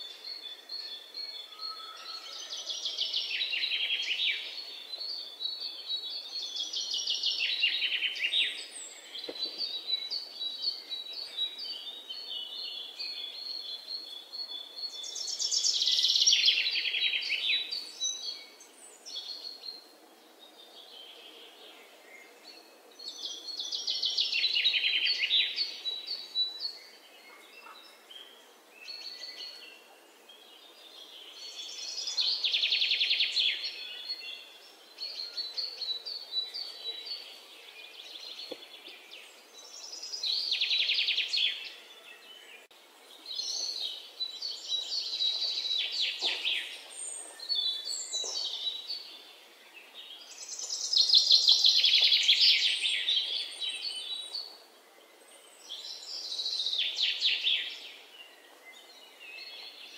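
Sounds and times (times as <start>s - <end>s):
quiet bird chirps: 0.0s - 59.9s.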